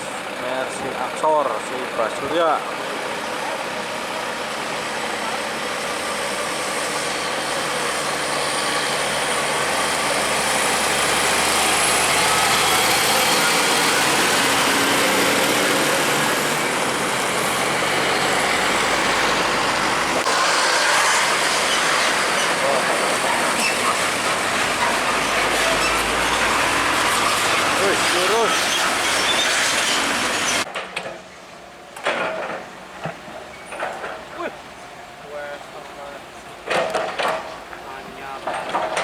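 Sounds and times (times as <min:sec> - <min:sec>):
heavy trucks passing: 0:00.0 - 0:39.0.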